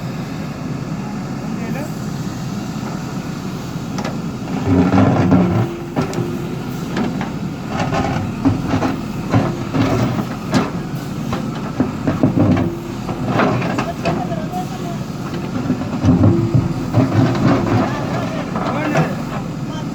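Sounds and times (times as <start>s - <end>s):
diesel engine under load: 0.0s - 19.9s
concrete knocks and clanks: 4.0s - 19.6s.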